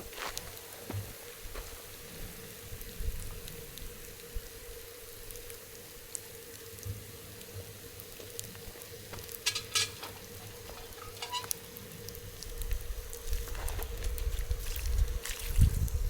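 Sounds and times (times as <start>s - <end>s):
wood fire crackling: 0.0s - 16.0s
wind buffeting microphone: 12.3s - 16.0s.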